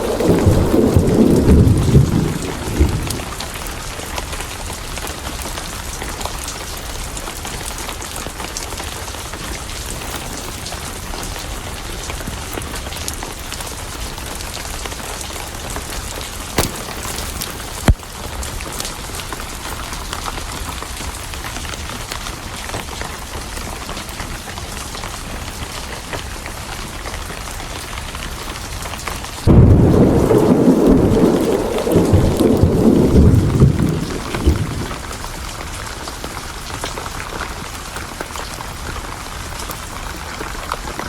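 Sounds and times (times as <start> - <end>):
deep thunderclap rumbling: 0.0 - 3.8, 29.4 - 35.6
steady rain: 0.0 - 41.0
wood fire crackling pops: 16.6 - 18.2, 29.5 - 35.0.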